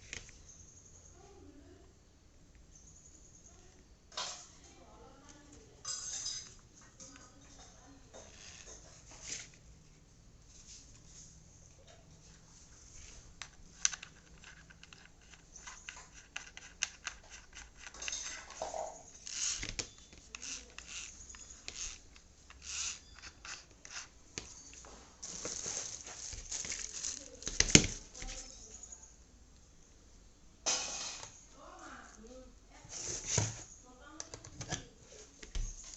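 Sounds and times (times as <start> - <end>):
packaging rustling and tearing: 25.2 - 28.6.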